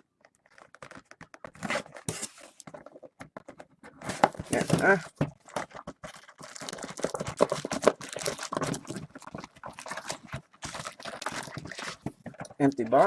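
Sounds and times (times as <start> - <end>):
card box and packs crinkling: 0.0 - 13.0.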